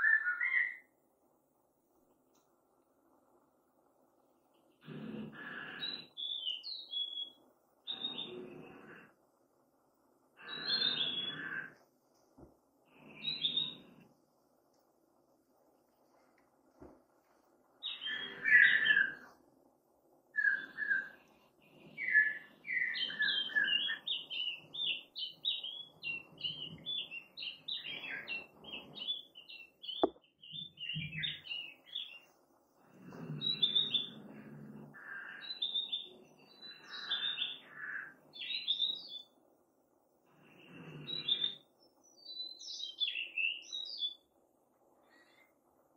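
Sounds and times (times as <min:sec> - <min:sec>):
songbird whistling: 0:00.0 - 0:00.9.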